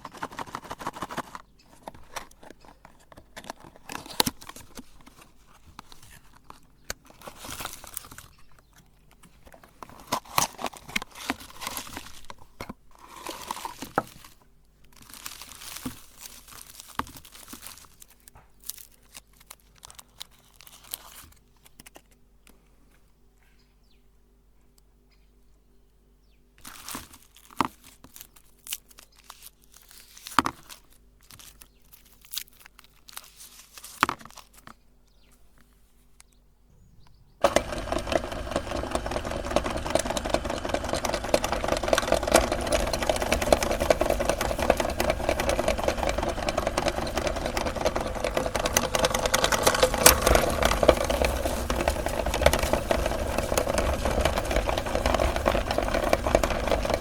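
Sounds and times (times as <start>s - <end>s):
handling clicks and crinkling: 0.0s - 23.5s, 26.6s - 36.4s, 37.4s - 57.0s
electric meat grinder grinding: 37.4s - 57.0s.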